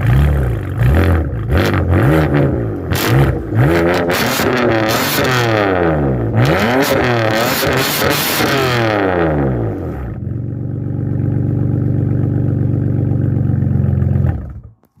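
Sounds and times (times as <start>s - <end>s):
car engine revving and idling: 0.0s - 14.9s.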